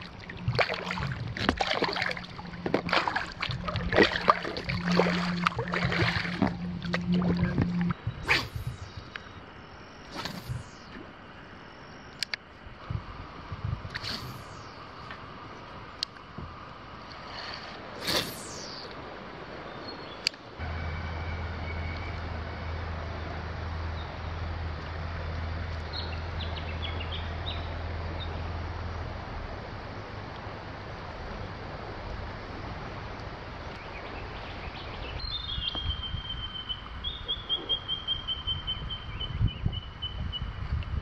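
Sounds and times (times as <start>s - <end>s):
wild birds calling: 0.0s - 11.2s, 18.0s - 18.9s, 33.8s - 40.2s
steady outdoor rush: 0.0s - 36.0s.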